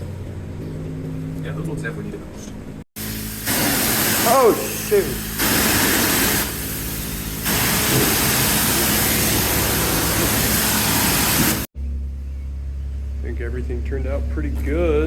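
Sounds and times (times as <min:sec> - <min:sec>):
low machinery hum: 0:00.0 - 0:05.4, 0:06.5 - 0:15.0
pressure washer spraying water: 0:03.0 - 0:11.7.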